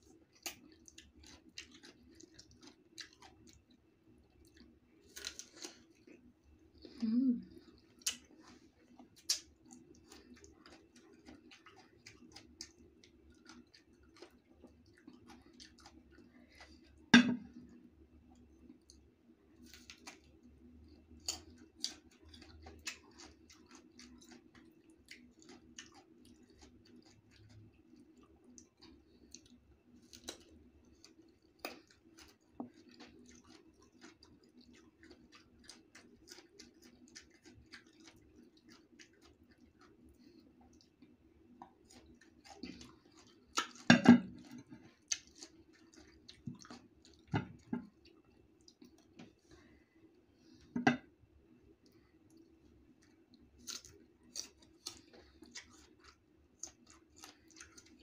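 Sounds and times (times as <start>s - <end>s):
chewing crisp mango: 0.0s - 50.7s, 51.5s - 58.0s.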